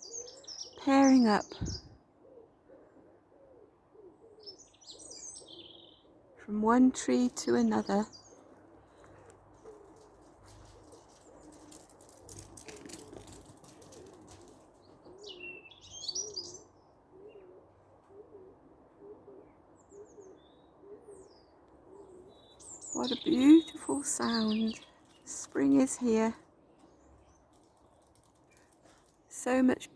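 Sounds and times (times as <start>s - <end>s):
songbird chirping: 0.0s - 2.0s, 4.0s - 29.9s
pigeon cooing: 2.2s - 6.4s, 9.1s - 15.5s, 16.1s - 22.4s.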